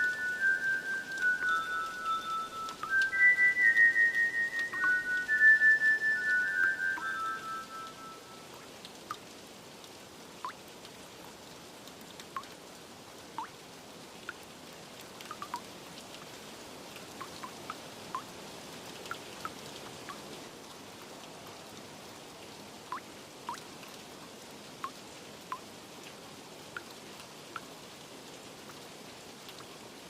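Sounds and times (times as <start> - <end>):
high held musical notes: 0.0 - 8.5
water drips plinking: 0.0 - 9.3, 10.4 - 10.7, 12.0 - 12.6, 13.3 - 13.6, 14.2 - 20.4, 22.9 - 24.0, 24.8 - 27.7
rain hiss: 0.0 - 30.0.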